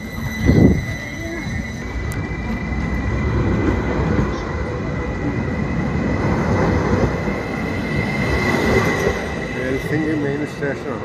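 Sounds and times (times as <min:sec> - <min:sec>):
thin high whine: 0:00.0 - 0:03.2
train wheels rumbling: 0:00.0 - 0:11.0.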